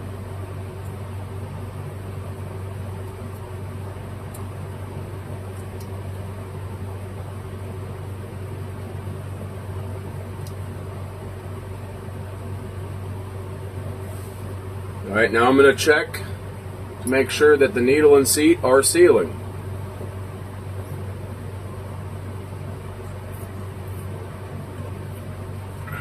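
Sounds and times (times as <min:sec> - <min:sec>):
machine hum: 0:00.0 - 0:26.0.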